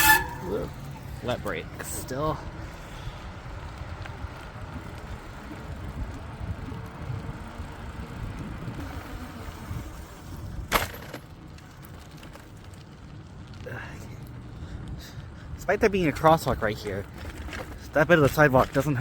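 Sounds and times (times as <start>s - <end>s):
tyre and road noise: 0.0s - 19.0s
wind rumble on microphone: 2.4s - 10.7s.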